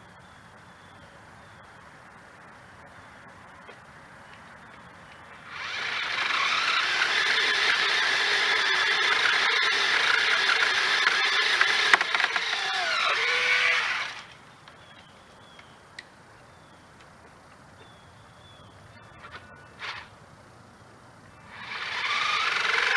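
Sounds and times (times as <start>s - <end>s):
pole saw high whine: 5.4s - 14.4s, 21.4s - 22.9s.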